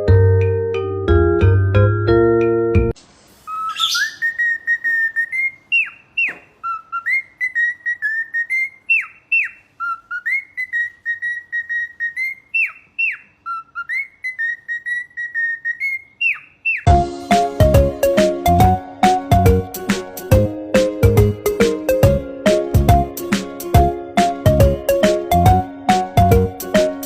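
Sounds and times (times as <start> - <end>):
chiming vibraphone-like music: 0.0 - 2.9
cockatiel whistling a tune: 3.5 - 16.9.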